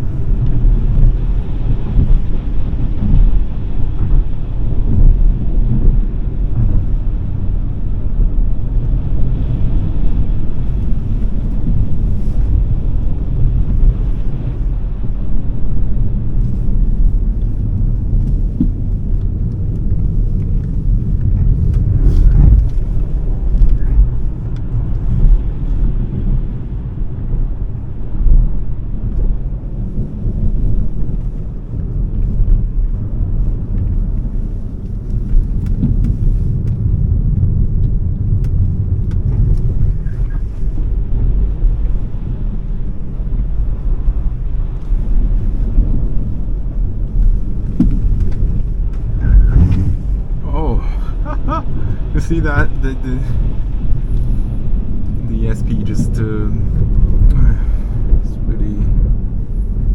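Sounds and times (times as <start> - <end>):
tyre and road rumble: 0.0 - 59.9
wind noise: 0.0 - 59.9
car bump: 47.5 - 50.5.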